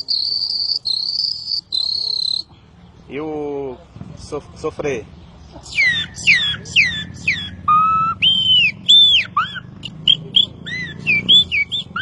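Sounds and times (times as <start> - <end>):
man whistling birdsong imitation: 0.0 - 2.5, 5.7 - 12.0.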